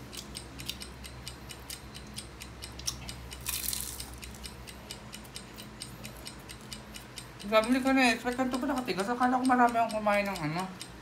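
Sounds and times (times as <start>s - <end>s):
chewing crunchy food: 0.0s - 1.0s, 1.6s - 4.6s.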